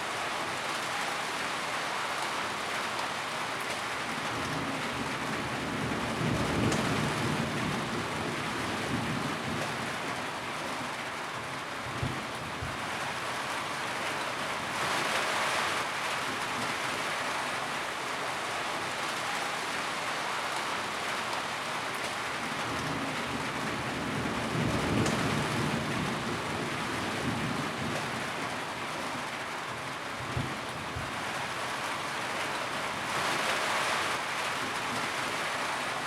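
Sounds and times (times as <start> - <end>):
rain on a tin roof: 0.0 - 36.0.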